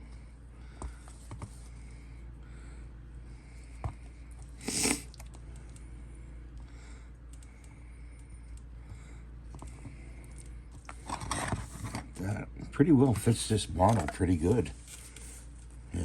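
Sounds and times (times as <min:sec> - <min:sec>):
plastic parts scraping: 0:10.8 - 0:12.2.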